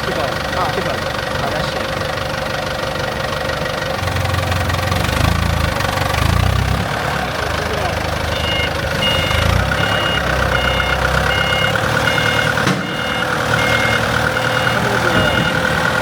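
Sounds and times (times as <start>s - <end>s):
diesel engine running: 0.0s - 16.0s
warning alarm beeping: 8.3s - 15.8s.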